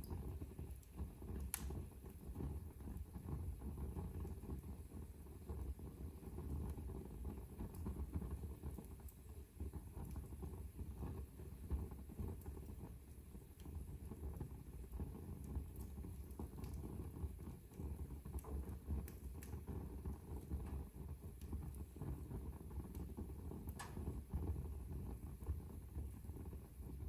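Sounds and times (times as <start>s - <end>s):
fire crackling and popping: 0.0s - 27.0s
fire rumbling: 0.0s - 27.0s.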